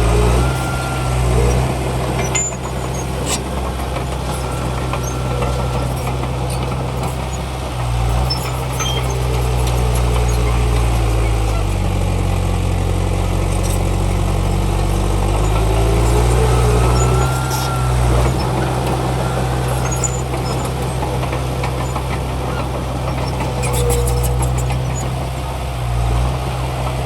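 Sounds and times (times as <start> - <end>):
heavy diesel machinery running: 0.0 - 27.0
thin squeals: 0.1 - 3.4, 8.1 - 10.7, 15.3 - 20.8.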